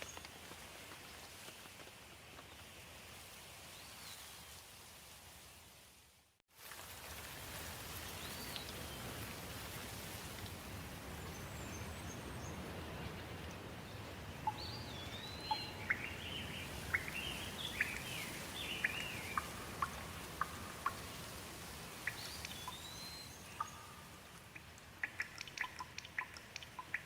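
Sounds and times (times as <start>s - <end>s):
steady rain falling: 0.0s - 27.0s
songbird singing: 11.2s - 21.2s, 22.0s - 27.0s.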